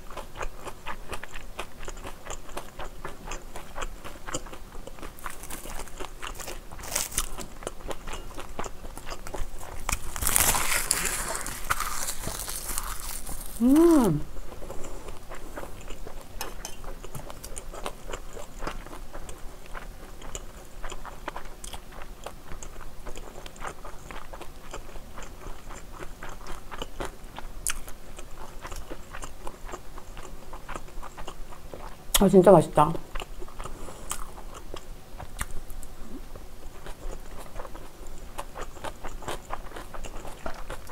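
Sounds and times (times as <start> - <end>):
chewing and crunching: 0.0 - 32.2, 33.0 - 40.9
person humming: 13.4 - 14.3.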